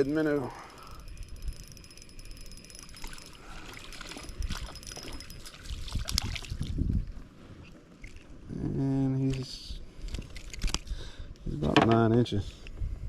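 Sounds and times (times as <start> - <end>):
water sounds around a kayak: 1.8 - 10.9
sharp splashes: 5.4 - 6.7.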